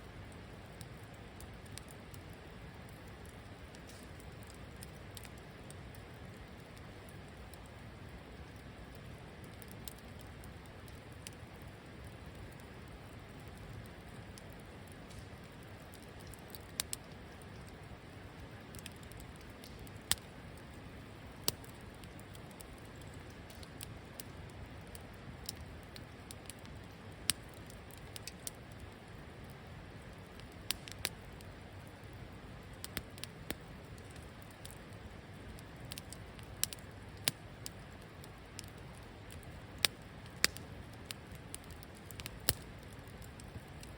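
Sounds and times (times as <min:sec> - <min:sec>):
campfire hissing: 0:00.0 - 0:43.9
fire crackling pops: 0:00.0 - 0:43.9.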